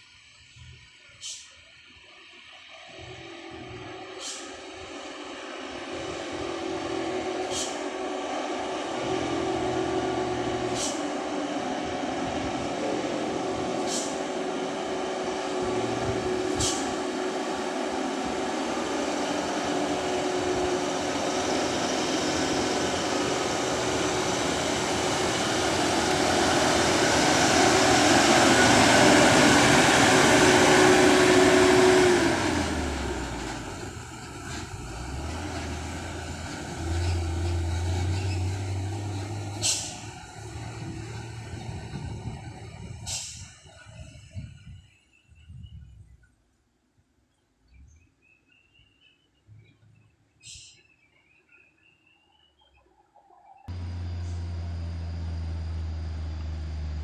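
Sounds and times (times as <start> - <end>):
dump truck engine and tyre noise: 0.1 - 44.6, 53.7 - 57.0
low engine hum: 2.9 - 43.4, 53.7 - 57.0
sharp hisses: 4.0 - 4.9, 7.4 - 7.9, 10.8 - 11.1, 13.8 - 14.4, 16.4 - 40.4.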